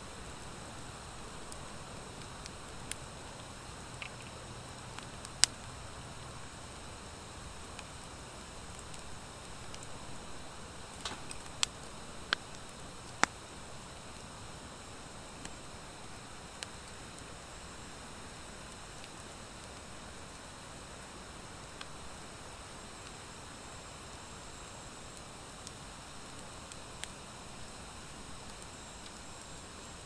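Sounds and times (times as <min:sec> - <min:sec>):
wood fire hissing and crackling: 0:00.0 - 0:30.0.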